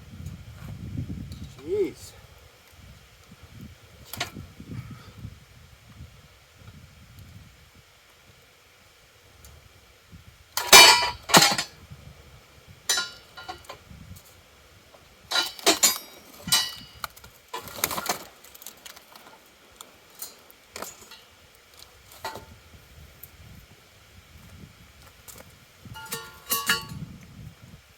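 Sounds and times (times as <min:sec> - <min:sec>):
metal parts clinking and clanking: 0:10.6 - 0:11.7, 0:12.9 - 0:13.8, 0:15.3 - 0:19.3, 0:26.0 - 0:27.0.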